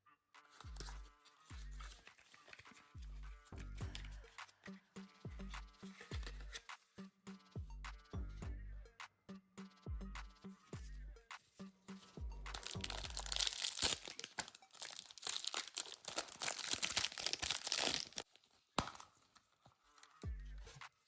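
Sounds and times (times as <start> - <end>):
background music with a beat: 0.4 - 13.6, 20.1 - 21.0
plastic packaging crinkling: 12.5 - 20.2.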